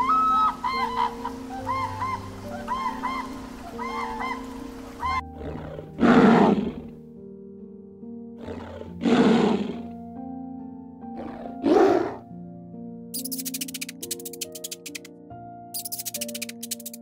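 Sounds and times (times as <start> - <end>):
soft background music: 0.0 - 17.0
lion roaring: 8.4 - 9.8, 11.2 - 12.2.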